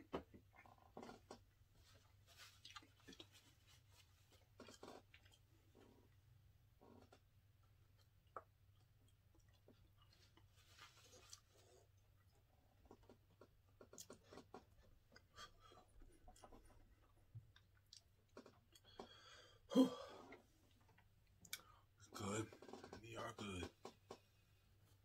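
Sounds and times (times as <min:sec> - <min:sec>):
man chewing: 0:02.0 - 0:06.2, 0:07.0 - 0:19.4.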